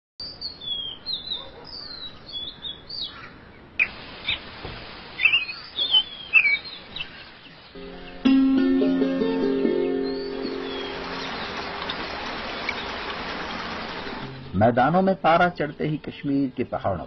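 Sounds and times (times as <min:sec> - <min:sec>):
small birds chirping and singing: 0:00.2 - 0:04.5, 0:05.2 - 0:17.0
faint hiss: 0:03.8 - 0:16.4
music: 0:07.8 - 0:11.3.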